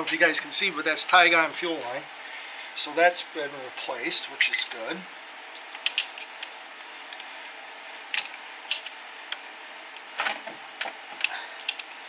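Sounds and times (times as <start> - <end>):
faint steady hiss: 0.0 - 12.0
tools and metal parts clicking: 5.8 - 7.3, 8.2 - 9.4, 10.0 - 11.9.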